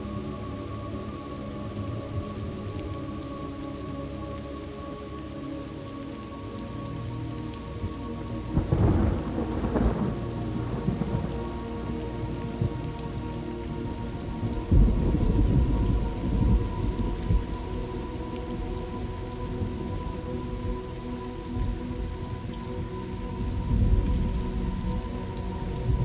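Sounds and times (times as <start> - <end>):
steady rain: 0.0 - 26.0
thunder rolling: 8.6 - 11.3, 14.5 - 17.5.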